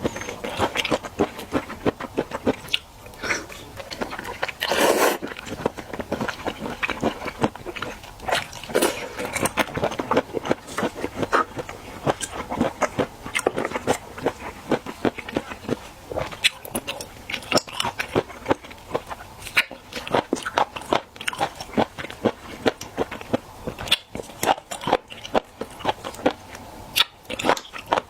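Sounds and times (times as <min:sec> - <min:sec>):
crackly mouth clicks: 0:00.0 - 0:28.0
wet chewing and smacking: 0:00.0 - 0:28.0
hissing mouth sound: 0:04.6 - 0:05.3.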